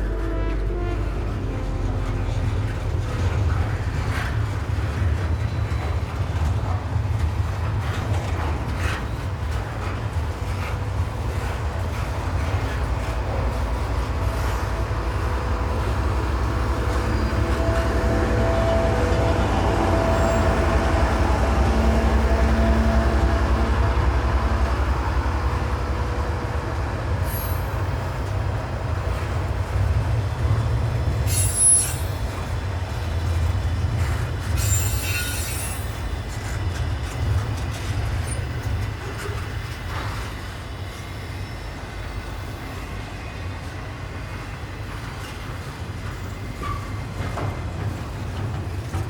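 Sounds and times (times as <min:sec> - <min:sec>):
train rumbling past: 0:00.0 - 0:49.0
wheel squeals: 0:31.2 - 0:32.3, 0:34.4 - 0:36.0.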